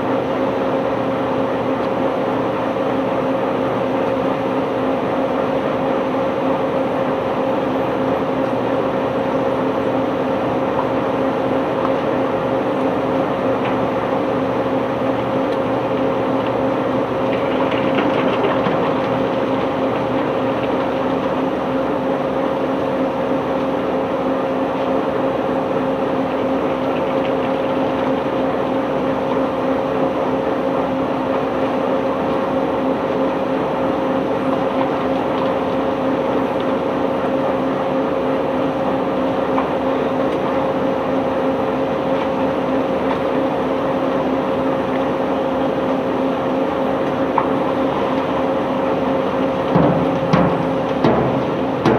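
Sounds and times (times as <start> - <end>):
heavy machinery humming: 0.0 - 51.9
mechanical din: 49.7 - 51.9.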